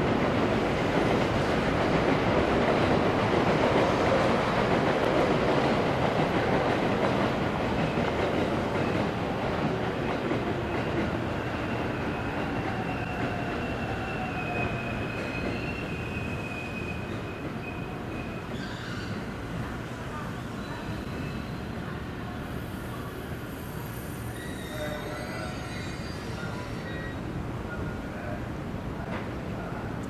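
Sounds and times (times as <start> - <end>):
electric train running on rails: 0.0 - 30.0
high wheel squeal: 23.6 - 27.2.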